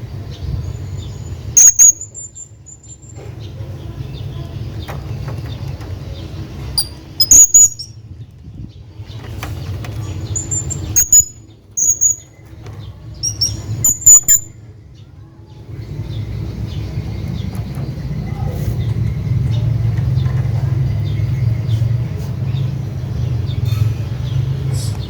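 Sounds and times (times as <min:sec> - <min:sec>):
parrot high-pitched calls: 0:01.6 - 0:02.2, 0:07.2 - 0:07.9, 0:10.9 - 0:12.2, 0:13.2 - 0:14.5.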